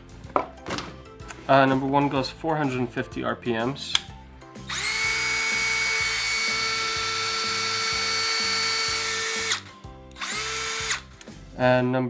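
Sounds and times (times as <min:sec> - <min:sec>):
cordless drill motor whining: 0:04.6 - 0:11.3.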